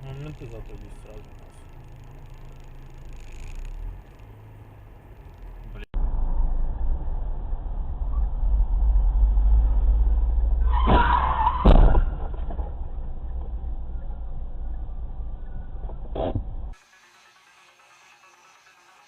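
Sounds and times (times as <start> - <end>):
road and engine rumble: 0.0 - 19.0
car tyres squealing: 10.6 - 12.2.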